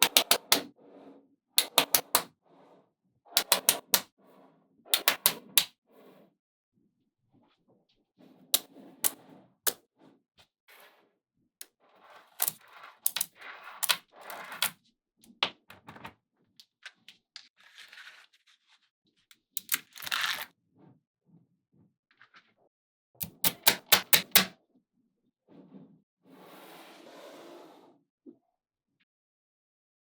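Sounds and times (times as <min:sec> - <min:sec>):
magnetic balls clicking together: 0:00.0 - 0:00.7, 0:01.6 - 0:02.3, 0:03.4 - 0:04.1, 0:05.0 - 0:05.7, 0:12.4 - 0:14.7, 0:19.6 - 0:20.2, 0:23.2 - 0:24.5.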